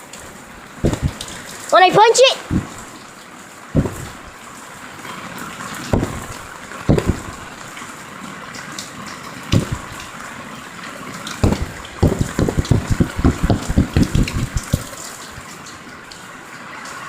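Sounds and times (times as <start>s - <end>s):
heavy rain pouring: 0.0s - 17.0s
dull thumps: 0.8s - 1.6s, 2.4s - 3.1s, 3.8s - 4.4s, 5.9s - 7.7s, 9.5s - 10.1s, 11.4s - 15.0s.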